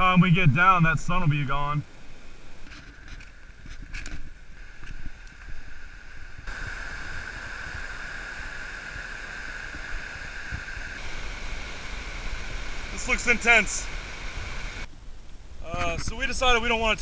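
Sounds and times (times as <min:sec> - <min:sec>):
waterfall and rapids rushing: 0:04.4 - 0:14.9, 0:15.6 - 0:17.0.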